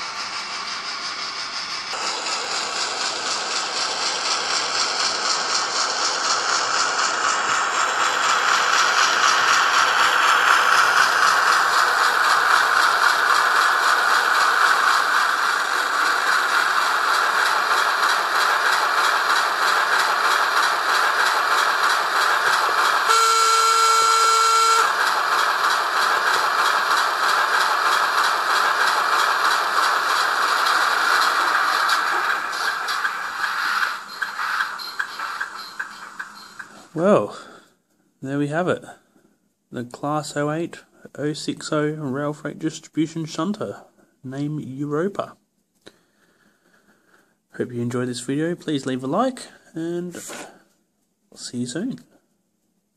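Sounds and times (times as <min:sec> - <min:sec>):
model diesel engine sound: 0:00.0 - 0:35.8
model train horn: 0:23.1 - 0:25.0.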